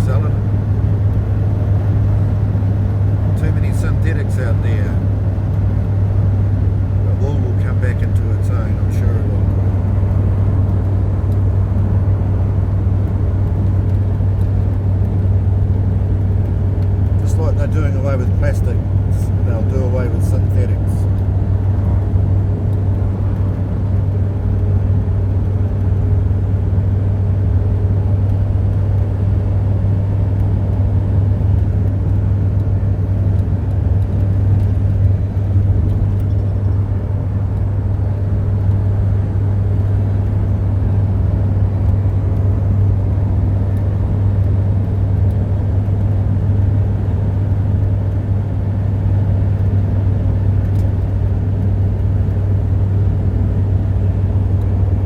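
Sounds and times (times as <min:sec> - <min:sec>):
constant low hum: 0:00.0 - 0:55.0
vehicle rumble: 0:00.0 - 0:55.0.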